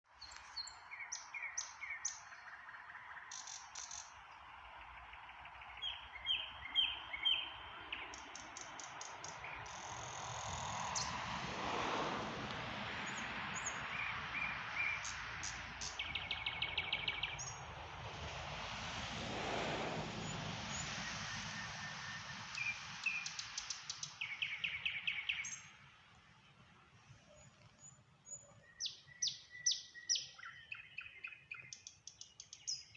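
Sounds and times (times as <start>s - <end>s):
nightingale singing: 5.6s - 10.6s, 27.3s - 32.9s.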